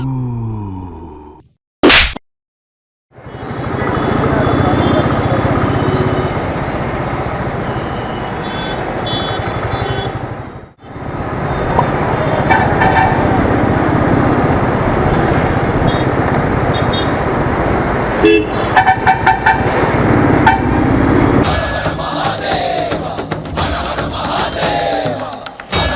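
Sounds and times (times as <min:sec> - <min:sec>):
vehicle horns honking: 0:03.3 - 0:06.5, 0:07.6 - 0:10.4, 0:11.5 - 0:13.4, 0:16.7 - 0:17.2, 0:18.2 - 0:20.9.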